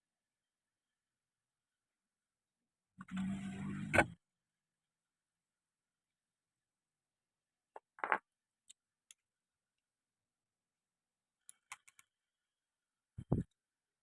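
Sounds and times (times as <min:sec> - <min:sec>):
metal parts knocking and clicking: 0:11.5 - 0:12.1.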